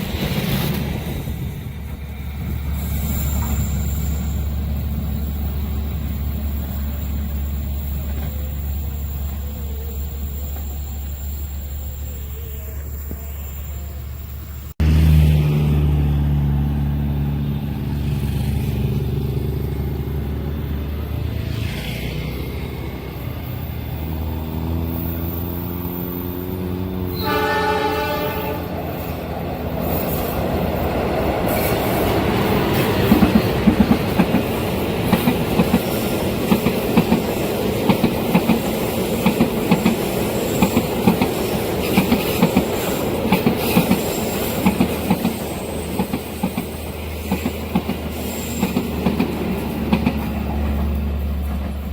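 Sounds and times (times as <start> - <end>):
train wheels clattering on rails: 0.0 - 9.6, 29.1 - 51.9
locomotive engine drone: 1.7 - 34.2
train horn blast: 27.0 - 29.0.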